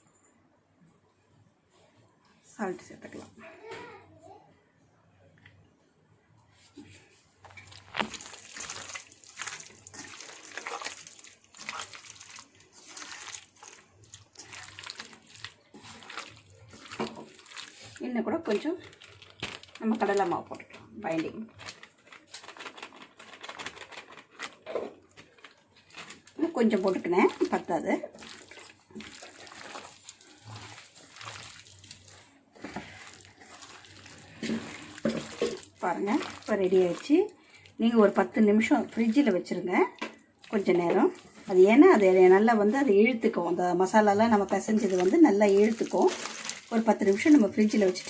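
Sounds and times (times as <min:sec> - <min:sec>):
hands squelching in marinade: 0:06.9 - 0:20.3, 0:25.4 - 0:37.9, 0:40.4 - 0:43.1, 0:44.0 - 0:48.0.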